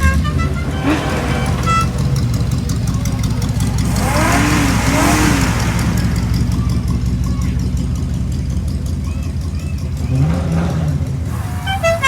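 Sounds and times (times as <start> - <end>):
car horn toot: 0.0 - 7.6, 10.1 - 12.0
car engines idling: 0.0 - 12.0.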